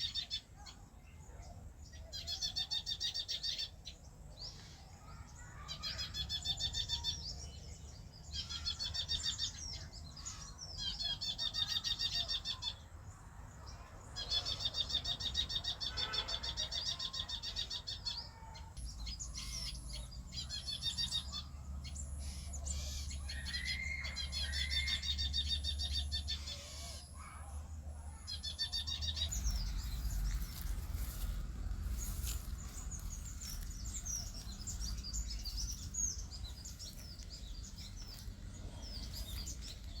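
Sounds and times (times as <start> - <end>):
songbird trilling: 18.8 - 27.1, 28.3 - 40.0
low rumble: 29.3 - 40.0.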